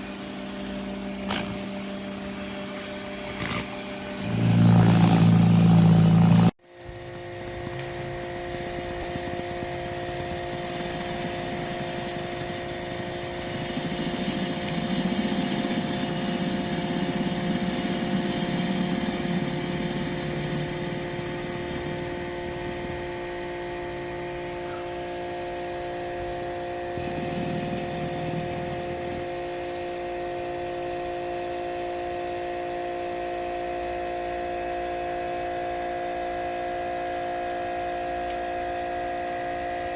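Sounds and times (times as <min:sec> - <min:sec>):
pressure washer whining: 0:00.0 - 0:06.6, 0:07.4 - 0:31.1.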